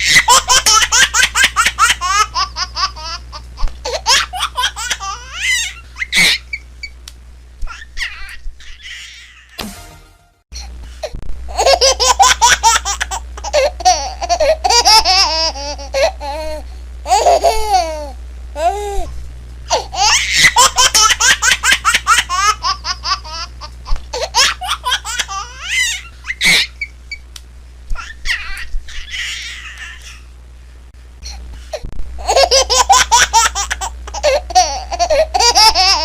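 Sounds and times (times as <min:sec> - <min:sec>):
baby laughing: 0:00.0 - 0:06.6, 0:11.5 - 0:18.7, 0:19.7 - 0:26.9, 0:28.0 - 0:30.2, 0:32.2 - 0:36.0.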